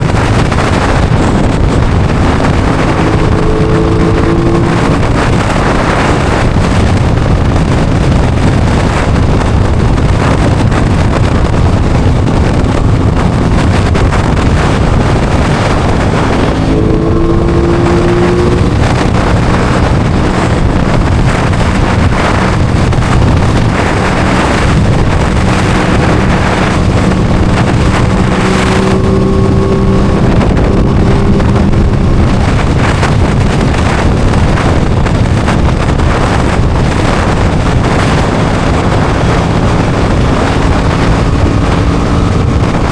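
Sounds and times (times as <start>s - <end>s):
motorcycle engine revving: 0.0s - 42.9s
wind noise on microphone: 0.0s - 42.9s.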